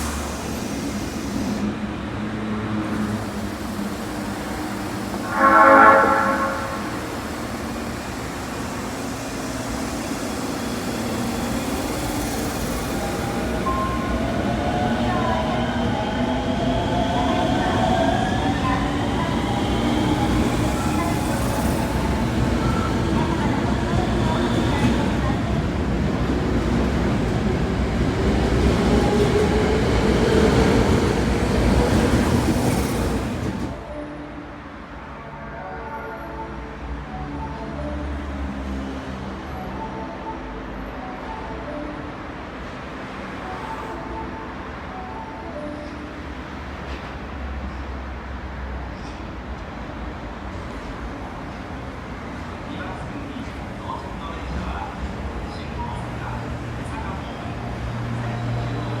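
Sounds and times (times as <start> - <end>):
train rumbling: 0.0 - 35.5, 36.3 - 59.0
train horn blast: 5.1 - 7.7.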